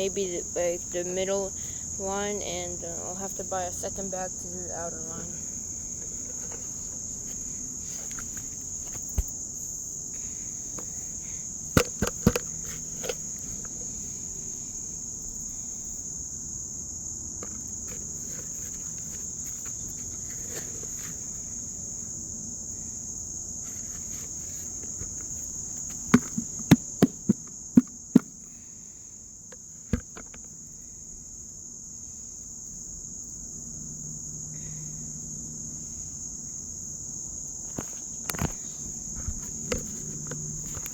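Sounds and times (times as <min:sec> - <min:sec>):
insects chirring: 0:00.0 - 0:40.9
sharp taps: 0:26.1 - 0:28.4.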